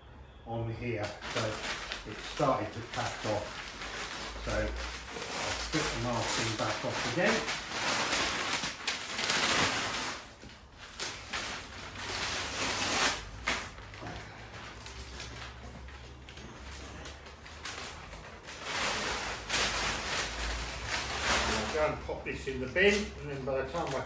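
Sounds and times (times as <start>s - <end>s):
paper rustling and crumpling: 0.8s - 24.0s
masking tape tearing: 1.1s - 15.6s, 16.4s - 22.0s.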